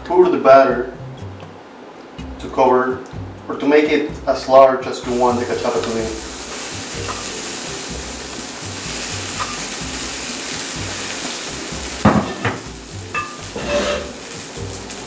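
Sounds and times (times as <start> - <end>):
batter sizzling in a pan: 5.1 - 15.0
spoon knocking against a pan: 12.0 - 13.5.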